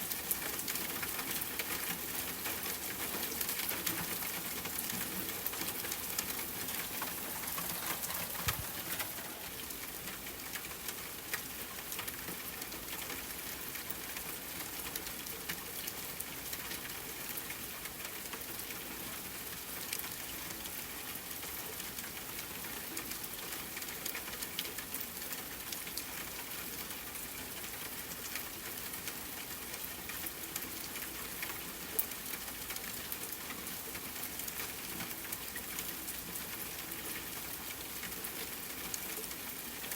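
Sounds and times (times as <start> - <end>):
rain on a tent: 0.0 - 39.9
campfire crackling: 4.2 - 9.9.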